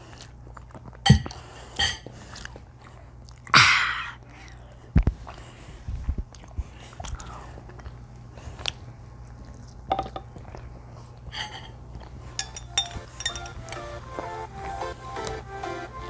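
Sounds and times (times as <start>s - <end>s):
chewing and biting food: 0.0s - 3.5s, 4.4s - 12.4s.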